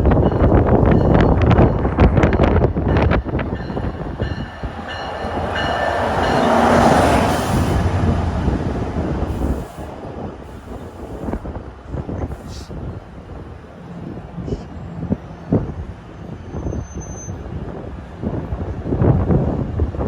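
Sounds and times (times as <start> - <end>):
train wheels rushing: 0.0 - 14.3
high wheel squeal: 16.3 - 17.4.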